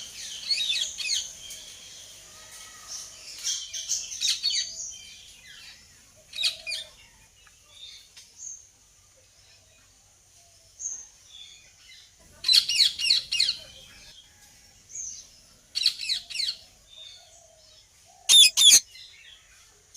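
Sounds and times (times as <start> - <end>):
parakeets chirping shrilly: 18.3 - 18.8.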